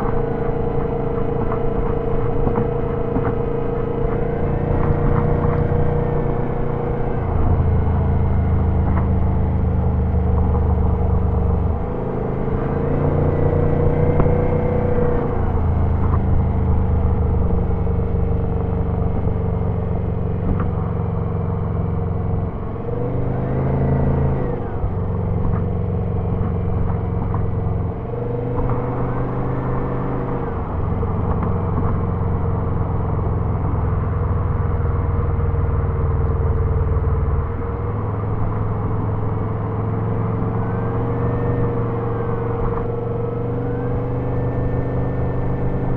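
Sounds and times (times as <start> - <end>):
car engine pulling: 0.0 - 45.9.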